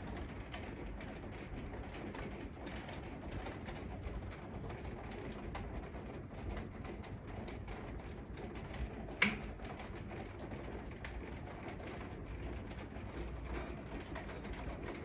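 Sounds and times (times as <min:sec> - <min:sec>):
sharp click: 0:09.2 - 0:09.4.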